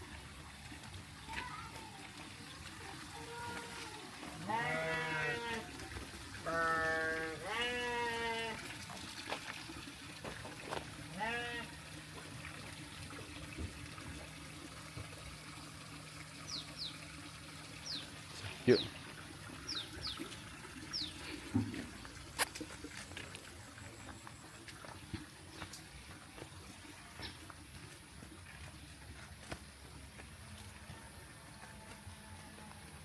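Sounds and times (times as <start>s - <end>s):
livestock bleating: 4.4s - 5.7s, 6.4s - 8.6s, 11.1s - 11.7s.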